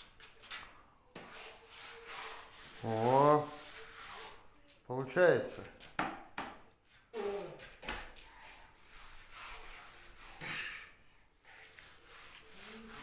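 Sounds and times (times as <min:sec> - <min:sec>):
paintbrush rubbing on surface: 0:00.0 - 0:05.9, 0:06.8 - 0:10.7, 0:11.4 - 0:13.0
small child vocal sounds: 0:07.1 - 0:07.7.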